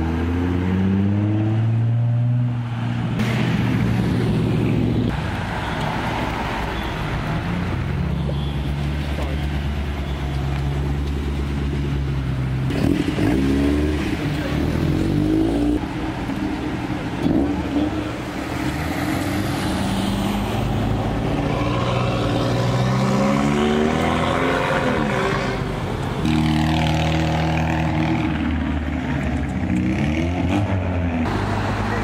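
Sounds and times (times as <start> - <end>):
car engines accelerating: 8.8 - 32.0.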